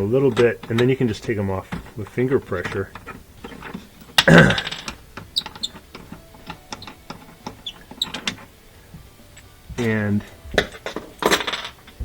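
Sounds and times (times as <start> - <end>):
metal nuts clicking and clinking: 2.5 - 8.5.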